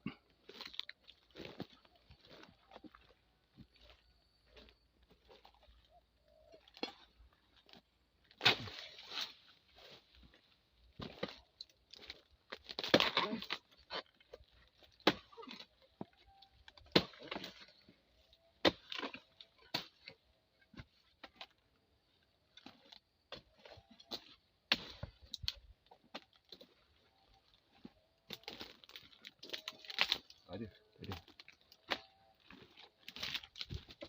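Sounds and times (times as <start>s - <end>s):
blade chopping into fronds: 8.3s - 9.4s
wood cracking and splintering: 10.9s - 20.2s, 27.7s - 34.0s.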